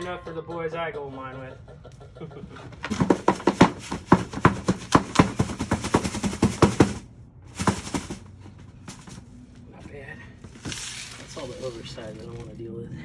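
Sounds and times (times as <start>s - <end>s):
rock being crushed and rattling: 2.9s - 8.3s.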